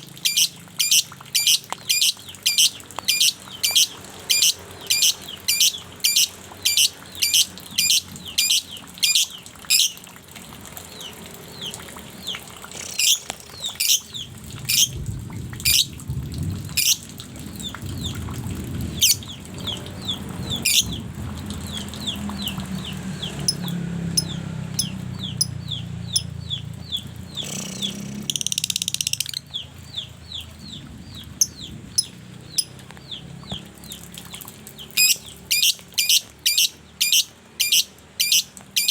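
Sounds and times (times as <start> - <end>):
songbird calling: 0.0 - 10.0, 11.0 - 15.0, 15.7 - 16.0, 19.0 - 34.0, 34.8 - 38.9
low rumble: 29.5 - 33.5.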